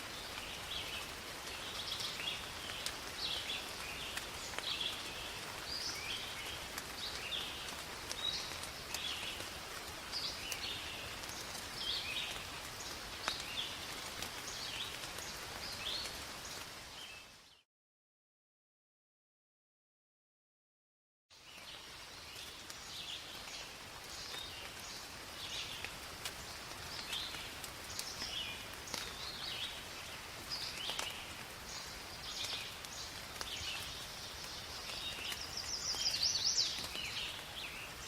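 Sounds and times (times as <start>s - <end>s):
rain falling through forest: 0.0s - 17.7s, 21.3s - 38.0s
birds chirping: 30.5s - 38.0s.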